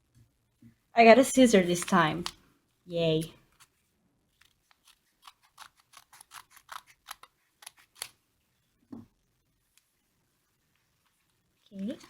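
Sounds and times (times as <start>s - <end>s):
scissors snipping: 4.4s - 8.1s.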